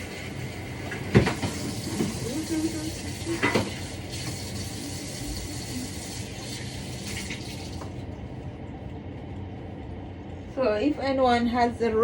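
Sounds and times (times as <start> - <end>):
tap water running into sink: 0.0 - 8.0.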